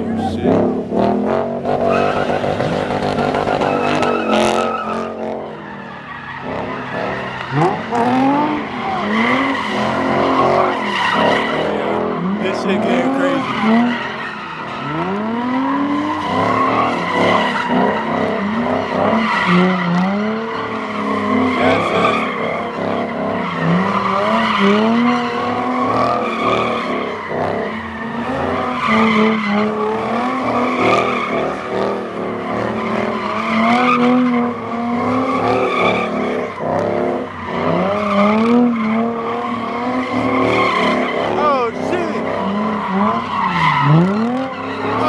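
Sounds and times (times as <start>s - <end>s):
car engine revving hard: 0.0s - 5.7s, 6.4s - 45.0s
tire squeal: 1.5s - 45.0s.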